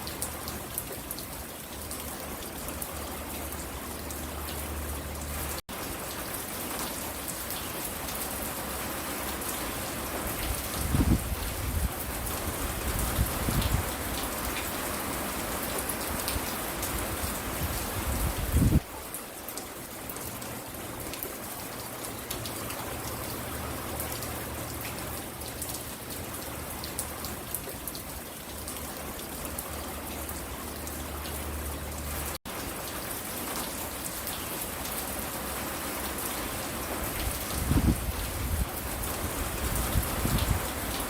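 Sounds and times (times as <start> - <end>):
raindrops hitting close by: 0.0 - 41.0
steady rain falling: 0.0 - 41.0.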